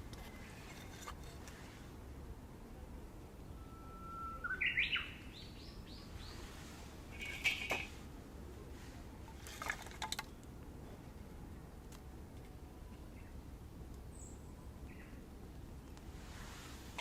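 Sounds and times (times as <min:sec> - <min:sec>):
bird singing: 0:03.4 - 0:06.4, 0:14.1 - 0:15.2.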